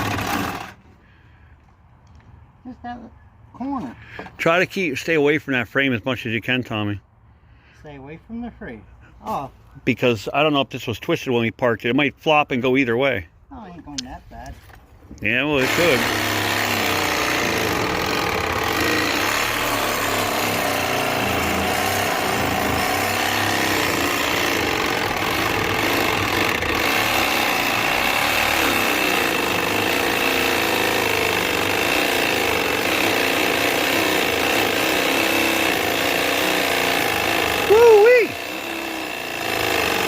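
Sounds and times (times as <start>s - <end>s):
reciprocating saw cutting steel: 15.5s - 40.0s.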